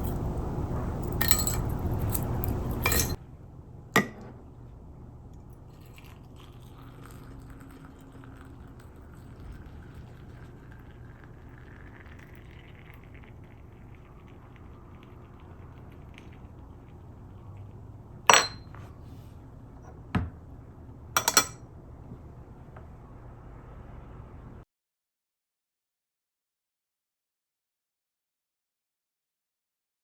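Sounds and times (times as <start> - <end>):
faint steady hum: 0.0 - 24.6
teaware clinking: 1.0 - 3.2, 4.0 - 4.4, 18.3 - 18.8, 21.2 - 21.6.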